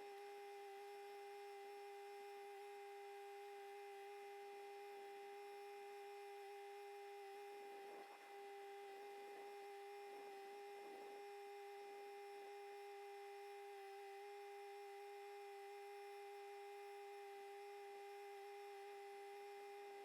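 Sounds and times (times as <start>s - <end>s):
faint steady tonal hum: 0.0s - 20.0s.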